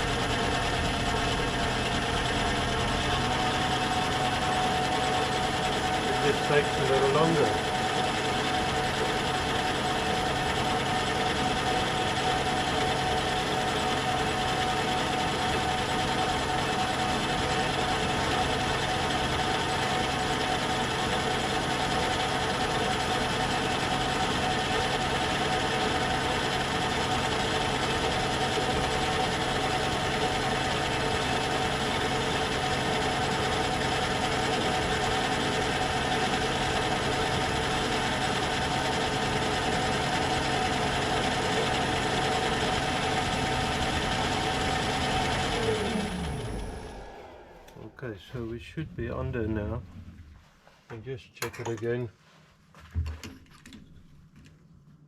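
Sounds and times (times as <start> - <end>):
metal lathe running: 0.0 - 47.8
gear train humming: 42.0 - 50.5.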